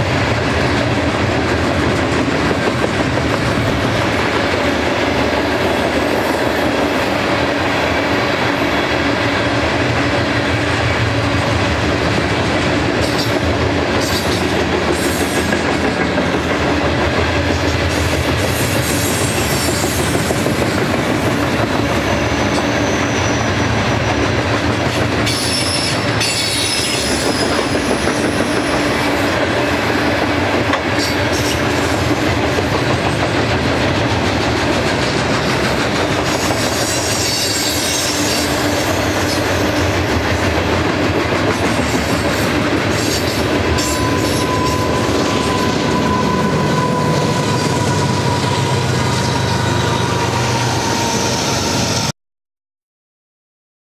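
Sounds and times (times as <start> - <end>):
freight train wheels rumbling on rail: 0.0 - 52.1
high wheel squeals: 22.0 - 23.8, 25.3 - 29.0, 43.0 - 52.1.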